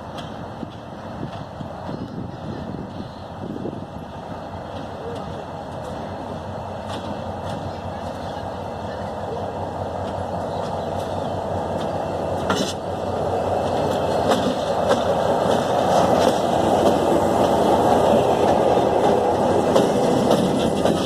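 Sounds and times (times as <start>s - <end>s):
train wheels rumbling on rails: 0.0s - 21.0s
wheels clicking over rail joints: 4.5s - 21.0s.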